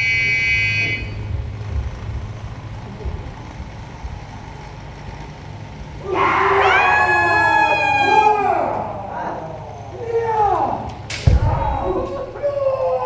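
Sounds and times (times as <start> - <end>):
electronic buzzer tone: 0.0 - 1.2
low steady rumble: 0.0 - 13.0.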